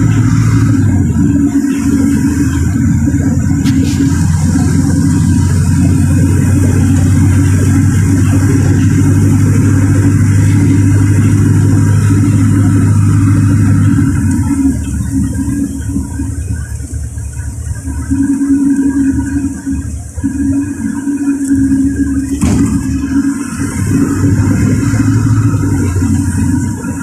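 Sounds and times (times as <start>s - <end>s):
bus diesel engine running: 0.0s - 27.0s.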